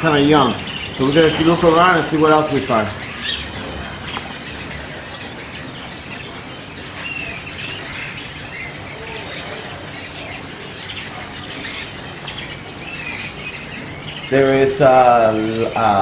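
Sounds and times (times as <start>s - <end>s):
caged birds chirping: 0.0s - 16.0s.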